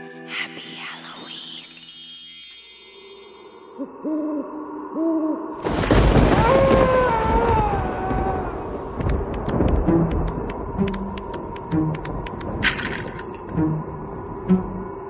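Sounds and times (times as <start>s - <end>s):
sparkly chime shimmer: 0.0s - 4.0s
slowly falling howl: 3.7s - 9.7s
owl hooting: 3.8s - 5.6s
rushing wind: 5.6s - 15.0s.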